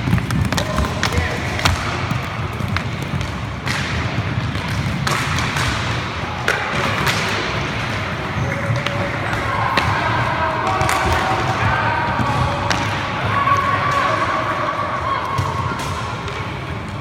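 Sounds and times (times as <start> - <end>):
stick hitting puck: 0.0 - 14.3
skates rumbling on rink floor: 0.0 - 17.0
players calling out: 5.8 - 17.0.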